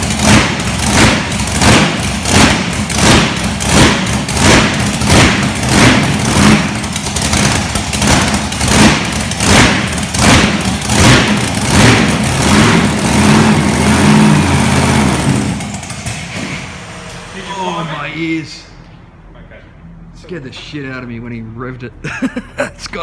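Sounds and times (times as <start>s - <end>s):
truck engine revving hard: 0.0s - 17.8s.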